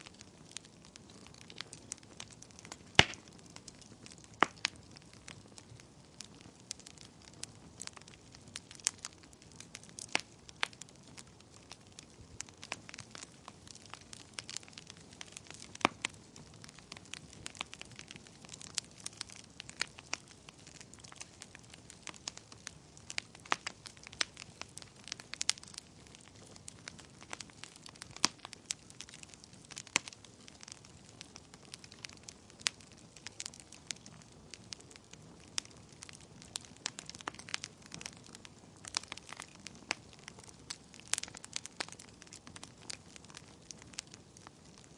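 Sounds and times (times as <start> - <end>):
fire crackles and pops: 0.0 - 44.9
fire hissing: 0.9 - 10.8.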